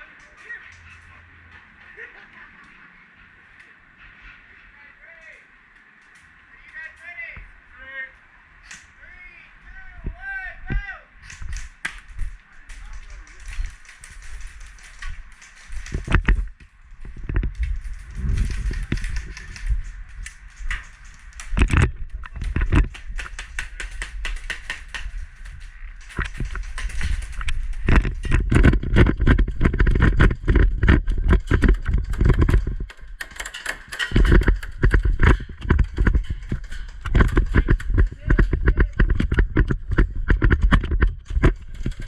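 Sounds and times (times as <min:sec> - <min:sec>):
low wind rumble: 0:06.3 - 0:42.0
footsteps: 0:09.8 - 0:42.0
gear rustling: 0:11.3 - 0:42.0.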